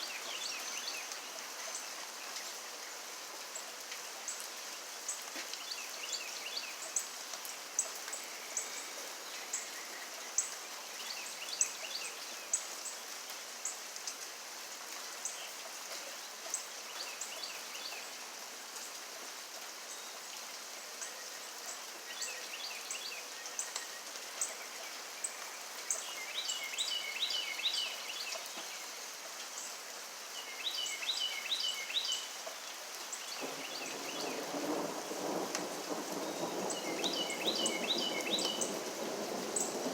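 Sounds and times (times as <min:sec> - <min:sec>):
steady rainfall: 0:00.0 - 0:39.9
thunder rumbling: 0:33.4 - 0:39.9.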